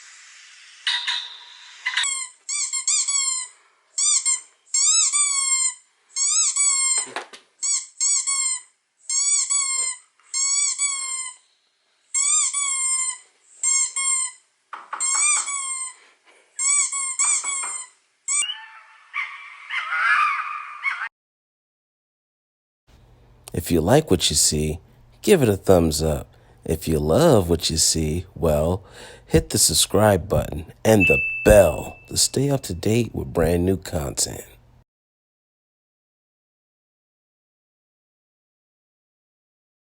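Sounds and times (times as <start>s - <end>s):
short high squeaks: 0.8s - 11.5s, 16.6s - 18.9s, 30.4s - 33.0s.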